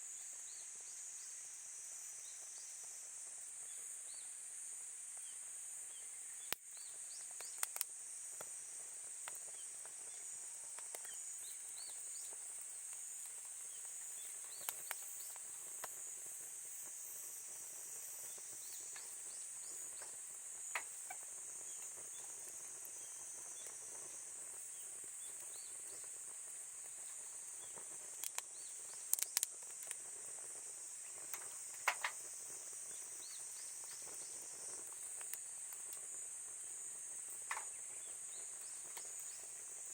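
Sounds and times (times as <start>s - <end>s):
insect chorus: 0.0s - 39.9s
campfire crackling and popping: 6.5s - 10.1s, 10.7s - 17.6s, 18.6s - 36.2s.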